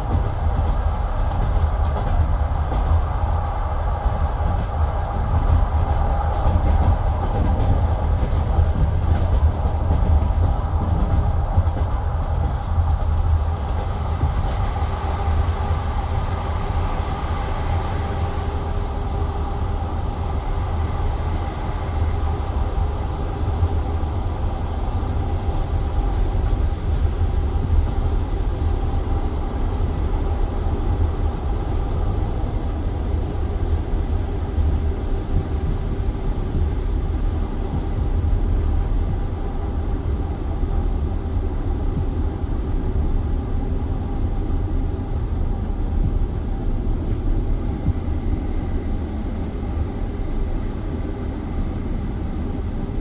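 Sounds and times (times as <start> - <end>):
train carriage rumble: 0.0 - 53.0.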